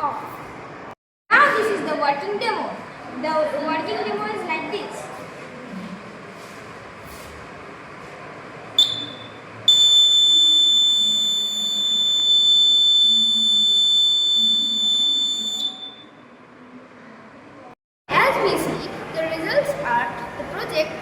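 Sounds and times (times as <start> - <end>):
high-pitched buzzer tone: 8.8 - 16.2.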